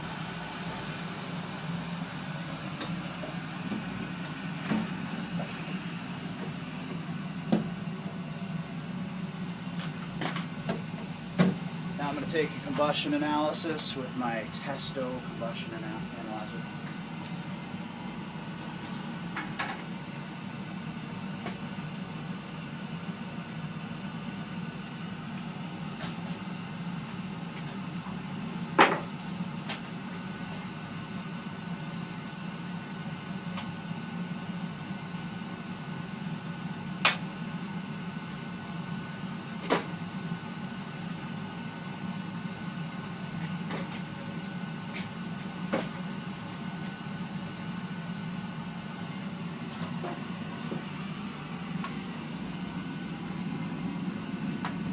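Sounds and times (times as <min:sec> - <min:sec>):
gas burner humming: 0:00.0 - 0:54.9.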